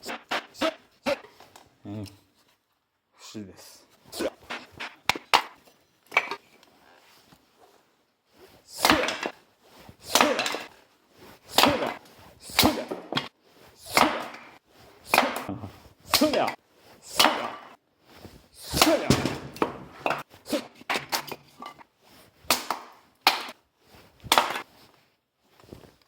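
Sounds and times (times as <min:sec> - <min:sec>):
axe chopping firewood: 0:04.2 - 0:06.4, 0:08.7 - 0:09.4, 0:10.0 - 0:10.7, 0:11.5 - 0:17.8, 0:18.6 - 0:21.6, 0:22.4 - 0:23.6, 0:24.2 - 0:24.6.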